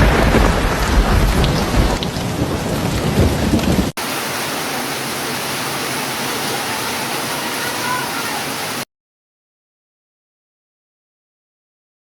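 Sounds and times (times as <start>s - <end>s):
low rolling thunder: 0.0s - 5.4s
heavy rain: 0.0s - 8.9s.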